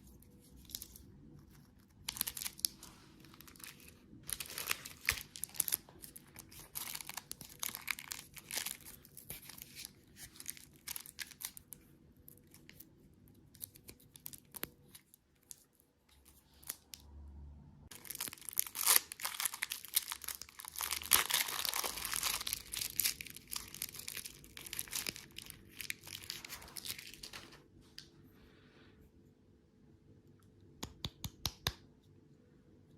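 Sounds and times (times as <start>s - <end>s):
plastic wrappers crinkling: 0.6s - 12.8s, 17.9s - 27.7s.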